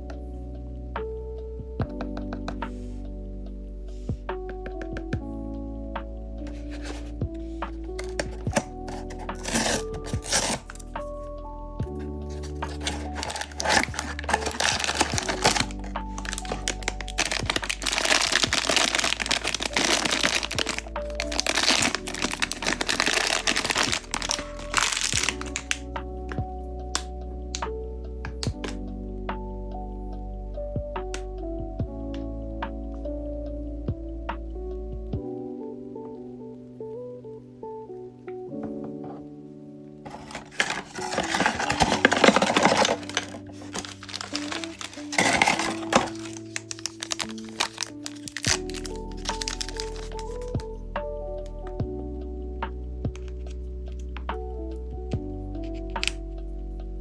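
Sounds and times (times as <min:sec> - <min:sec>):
background music: 0:00.0 - 0:57.0
plastic packaging crackling: 0:06.5 - 0:07.1, 0:08.0 - 0:10.9, 0:12.0 - 0:25.8, 0:40.0 - 0:50.7.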